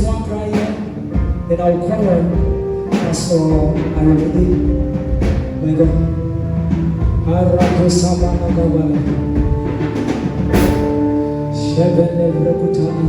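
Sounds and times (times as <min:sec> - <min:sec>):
drums: 0:00.0 - 0:12.0
sustained keyboard chords: 0:00.0 - 0:13.0.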